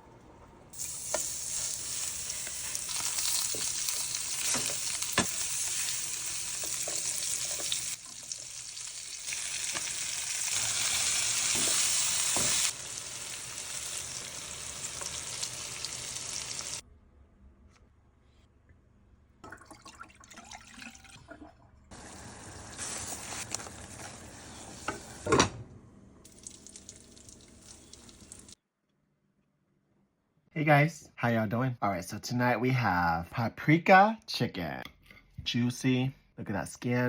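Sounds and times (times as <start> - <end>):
food sizzling in a pan: 0.8 - 16.8, 21.9 - 25.3, 26.3 - 28.6.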